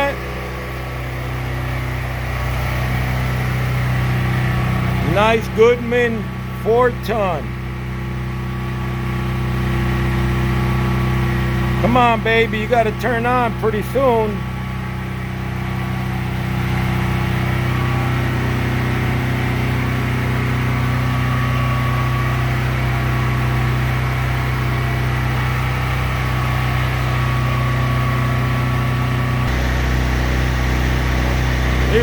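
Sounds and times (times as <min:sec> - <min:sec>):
air-conditioner compressor cutting in: 0:00.0 - 0:32.0
generator engine humming: 0:00.0 - 0:32.0.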